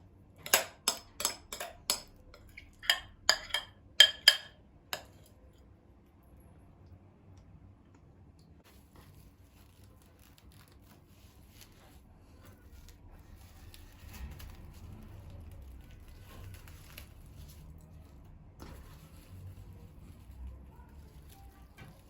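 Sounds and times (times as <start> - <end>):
soft rustling and crinkling: 8.6 - 22.0.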